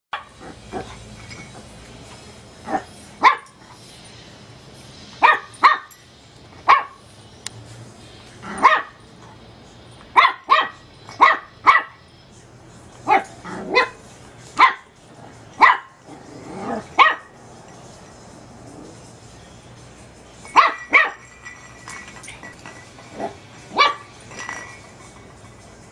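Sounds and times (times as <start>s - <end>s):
puppy yappy barking: 2.7s - 3.5s, 5.2s - 5.9s, 6.6s - 7.0s, 8.4s - 9.0s, 10.1s - 12.0s, 13.1s - 14.0s, 14.6s - 14.9s, 15.6s - 16.0s, 16.6s - 17.4s, 20.5s - 21.3s, 23.2s - 24.1s.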